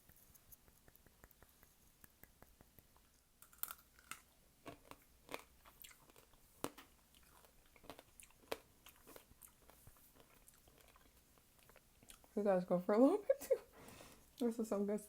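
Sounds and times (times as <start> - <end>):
crunching candied fruit: 3.4 - 12.4.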